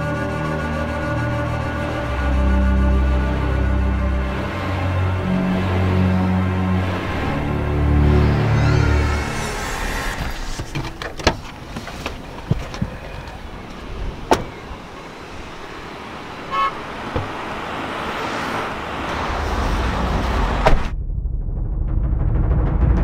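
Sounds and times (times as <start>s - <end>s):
street traffic: 0.0s - 20.9s
car door shutting: 10.2s - 13.3s, 14.2s - 14.7s, 17.0s - 17.5s.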